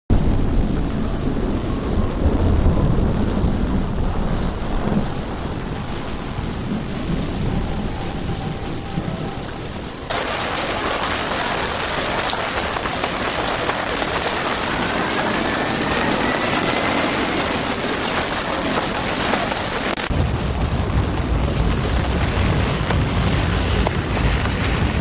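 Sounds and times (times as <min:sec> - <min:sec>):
heavy rain on wet street: 0:00.1 - 0:25.0
deep low rumble: 0:19.9 - 0:25.0.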